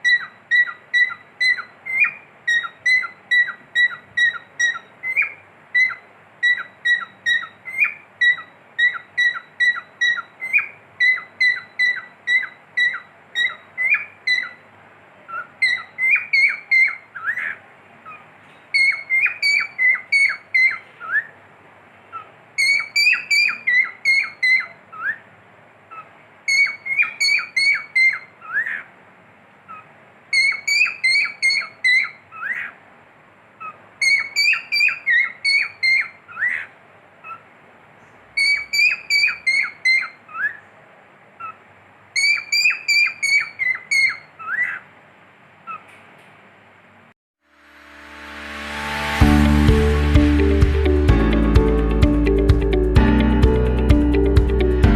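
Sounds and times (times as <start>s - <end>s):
cockatiel whistling: 0.0s - 14.6s, 15.3s - 18.2s, 18.8s - 21.3s, 22.6s - 25.2s, 25.9s - 28.8s, 29.7s - 32.7s, 33.6s - 36.6s, 38.4s - 40.6s, 42.2s - 44.8s.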